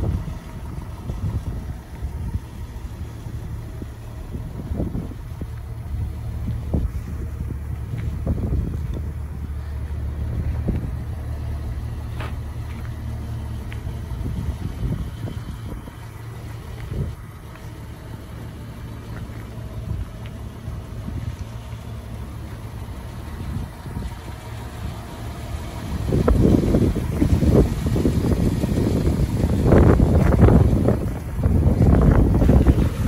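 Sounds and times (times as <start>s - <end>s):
wind buffeting microphone: 0.0s - 17.6s, 19.0s - 33.0s
car engine idling: 0.0s - 33.0s.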